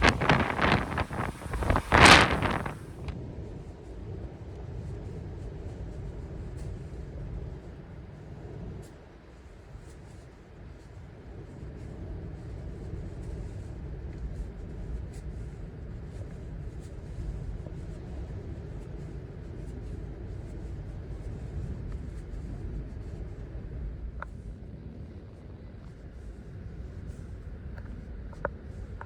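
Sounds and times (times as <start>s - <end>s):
gusty wind on microphone: 0.0s - 8.8s.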